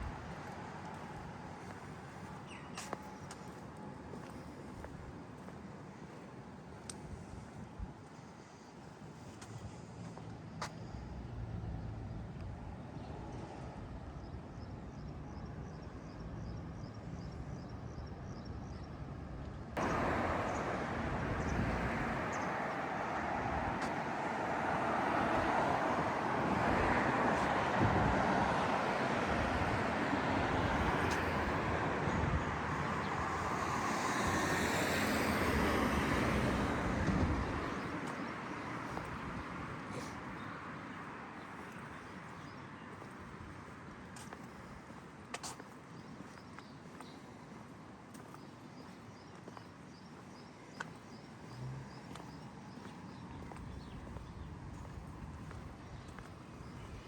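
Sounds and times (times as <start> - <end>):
street traffic noise: 0.0 - 57.0
vehicle passing close: 19.8 - 39.0.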